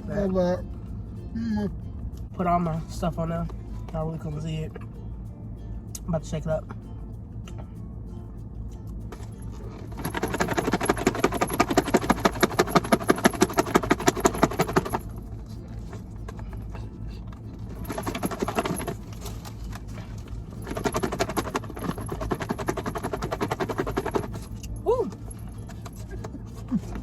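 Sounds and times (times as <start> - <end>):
salad rattling in shaken container: 8.9 - 27.0.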